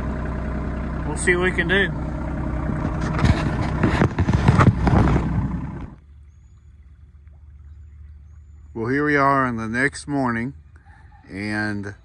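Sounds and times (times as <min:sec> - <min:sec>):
backhoe clanking and scraping: 0:00.0 - 0:06.0
tractor engine running: 0:00.0 - 0:12.0.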